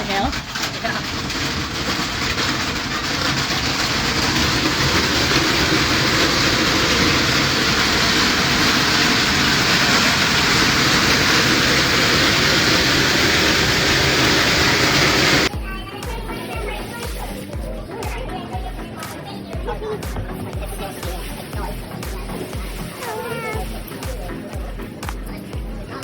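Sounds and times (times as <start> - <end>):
hailstones clattering: 0.0 - 15.5.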